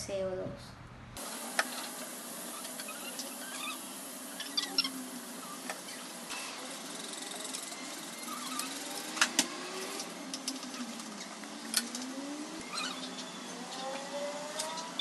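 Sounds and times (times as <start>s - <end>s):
steady hiss: 1.2s - 12.0s.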